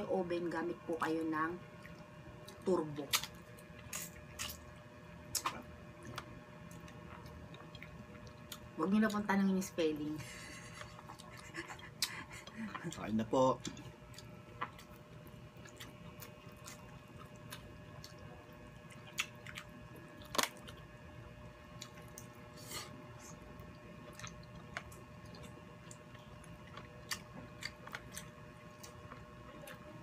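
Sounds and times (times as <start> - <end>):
people chewing: 5.3 - 9.2, 10.2 - 20.9, 21.7 - 30.0.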